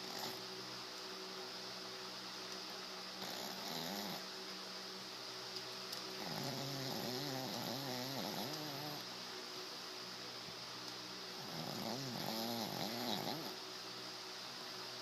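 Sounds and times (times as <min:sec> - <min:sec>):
dog snoring: 0:00.0 - 0:00.4, 0:03.2 - 0:04.3, 0:06.2 - 0:09.1, 0:11.4 - 0:13.6.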